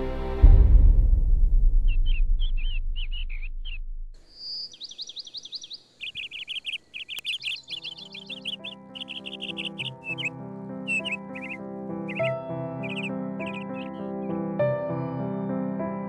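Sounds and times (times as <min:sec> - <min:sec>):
music: 0:00.0 - 0:02.7, 0:07.8 - 0:16.0
songbird chirping and trilling: 0:01.8 - 0:15.7.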